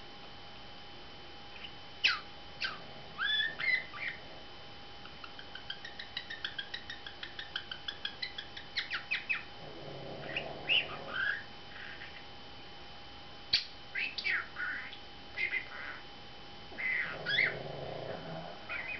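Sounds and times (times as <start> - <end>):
budgerigar chirping: 1.6 - 4.2, 5.1 - 9.5, 10.2 - 12.2, 13.5 - 16.0, 16.8 - 17.7, 18.7 - 18.9
budgerigar squawks: 1.6 - 4.2, 10.3 - 12.2, 13.6 - 16.0, 16.8 - 17.6, 18.7 - 18.9.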